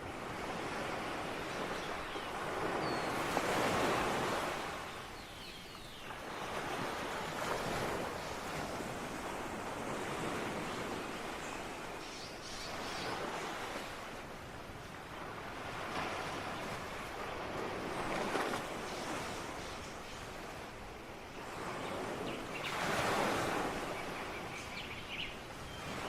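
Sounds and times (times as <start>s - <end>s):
ocean waves breaking on shore: 0.0s - 26.0s.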